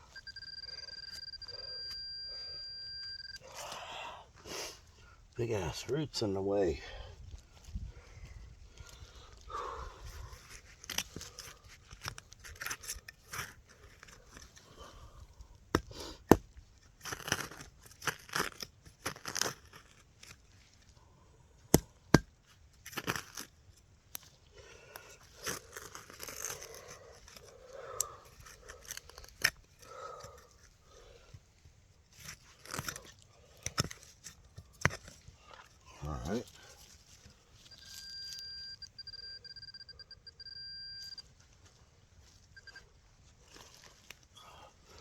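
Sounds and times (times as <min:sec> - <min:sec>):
digging tool tearing through roots: 0:15.8 - 0:20.7, 0:21.6 - 0:24.3, 0:24.9 - 0:30.7, 0:32.0 - 0:37.3.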